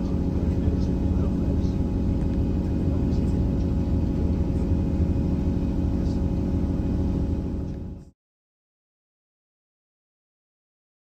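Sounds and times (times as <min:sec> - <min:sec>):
diesel train rumbling: 0:00.0 - 0:08.1.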